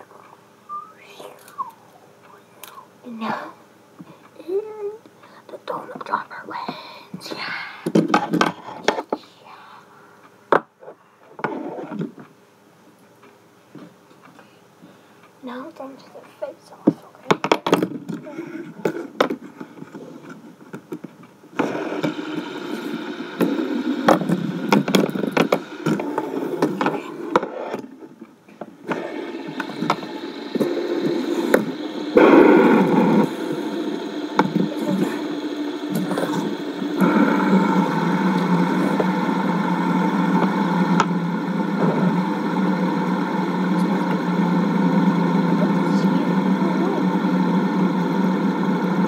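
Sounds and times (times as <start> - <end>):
fidget spinners whirring: 28.8 - 47.5.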